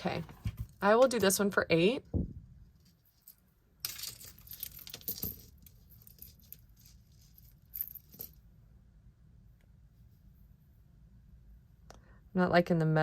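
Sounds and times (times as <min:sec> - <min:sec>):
metal jewelry jingling: 0:03.1 - 0:08.4.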